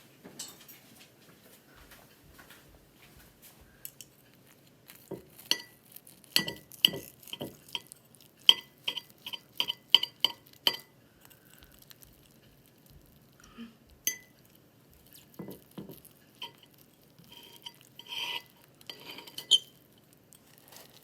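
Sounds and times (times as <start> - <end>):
utensils clinking against dishes: 0.3 - 1.0, 5.1 - 10.9, 17.3 - 21.0.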